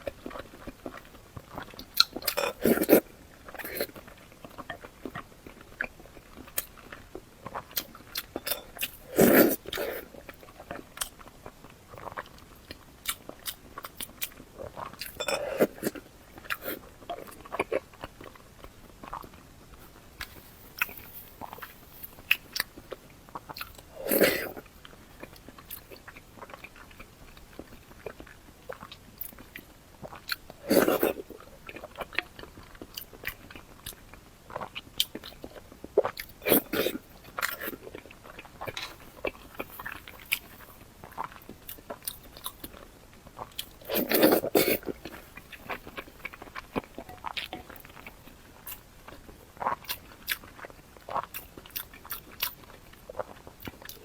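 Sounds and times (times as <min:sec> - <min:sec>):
person chewing wet clicks: 0:00.0 - 0:54.0.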